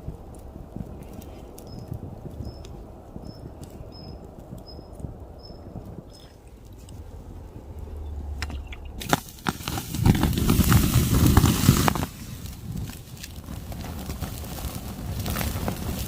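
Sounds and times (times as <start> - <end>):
campfire crackling: 0.0 - 16.0
loud rushing burst: 7.0 - 12.8.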